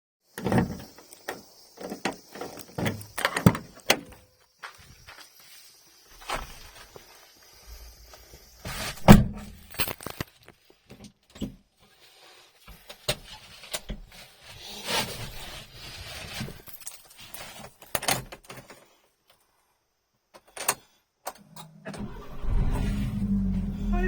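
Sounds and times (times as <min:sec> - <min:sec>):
car door thud: 0:09.0 - 0:09.4.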